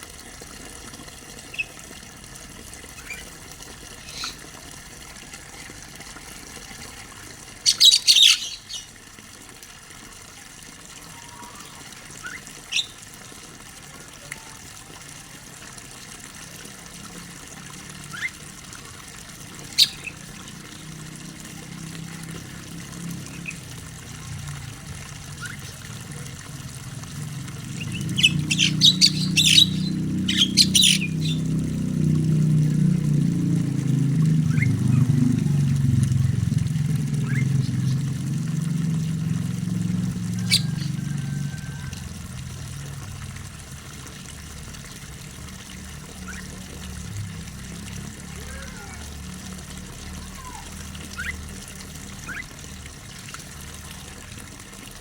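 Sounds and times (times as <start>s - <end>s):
starling squawking: 4.0s - 4.4s, 7.6s - 8.9s, 11.2s - 13.0s, 19.6s - 20.8s, 27.6s - 31.6s, 37.1s - 38.1s, 40.3s - 41.0s
bird chirps: 4.1s - 4.4s, 7.6s - 8.9s, 12.3s - 13.0s, 19.7s - 20.2s, 27.8s - 31.6s, 37.2s - 38.0s, 40.4s - 41.0s
low rumble: 31.0s - 40.3s.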